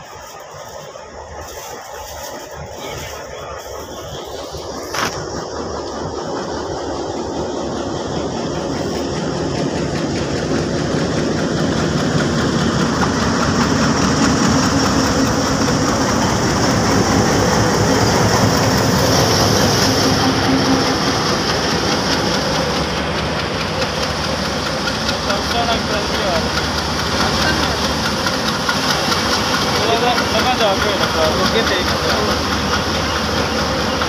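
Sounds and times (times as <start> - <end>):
diesel locomotive engine: 0.0 - 34.0
train coaches rolling past: 0.0 - 34.0.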